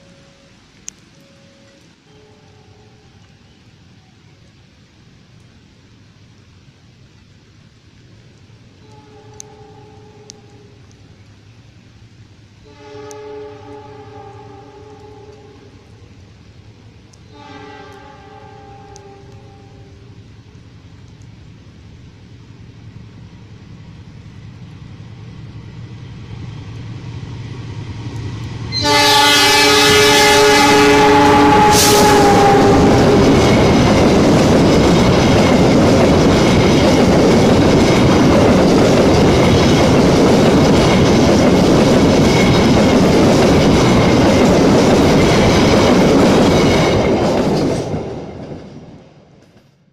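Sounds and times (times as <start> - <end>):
diesel locomotive passing: 0.0 - 49.9
wheels rumbling on rail: 0.0 - 49.9
locomotive horn chord: 1.2 - 3.2, 8.8 - 10.8, 12.6 - 15.9, 17.3 - 20.1, 28.7 - 33.4.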